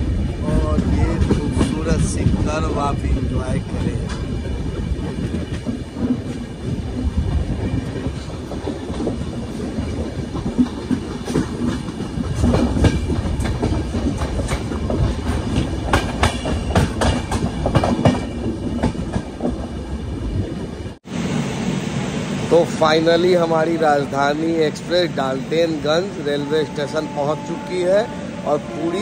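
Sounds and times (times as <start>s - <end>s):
train wheels rumbling on rail: 0.0s - 29.0s
wheels clacking over rail joints: 0.7s - 19.8s.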